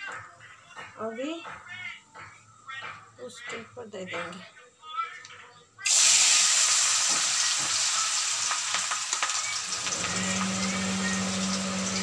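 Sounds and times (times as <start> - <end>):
potatoes sizzling in hot oil: 5.8 - 12.0
oil popping: 5.9 - 12.0.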